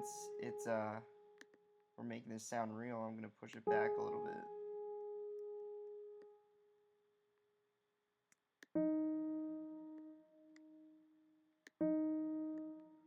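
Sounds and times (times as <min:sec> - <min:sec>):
piano notes: 0:00.0 - 0:01.4, 0:03.6 - 0:06.4, 0:08.8 - 0:11.0, 0:11.8 - 0:13.0.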